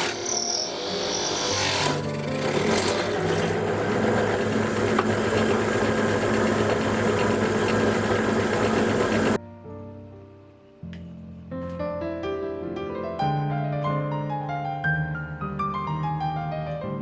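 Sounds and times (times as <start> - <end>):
power tool rattling on wood: 0.0 - 9.4.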